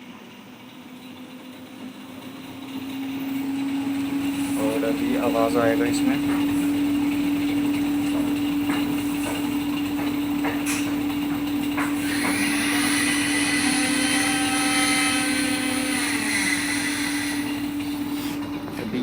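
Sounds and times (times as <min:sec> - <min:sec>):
washing machine drum spinning: 0:00.0 - 0:19.0
washing machine knocks and rattles: 0:04.8 - 0:13.0.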